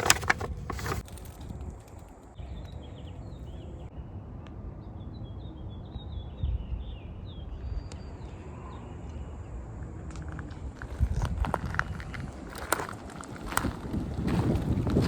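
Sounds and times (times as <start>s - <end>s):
wind rumble on microphone: 0.4s - 15.0s.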